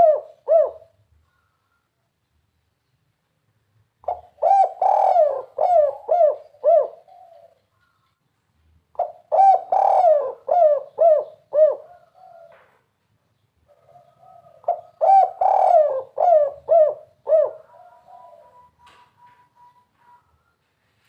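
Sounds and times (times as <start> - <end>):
dove cooing: 0.0 - 1.8, 4.0 - 8.0, 8.9 - 12.9, 13.7 - 20.6.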